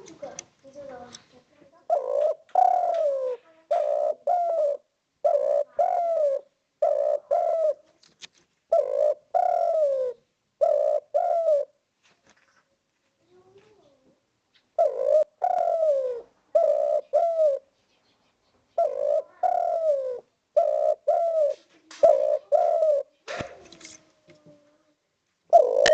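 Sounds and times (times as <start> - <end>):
dove cooing: 1.7 - 7.9, 8.7 - 11.8, 14.8 - 18.2, 18.8 - 24.8, 25.5 - 25.9.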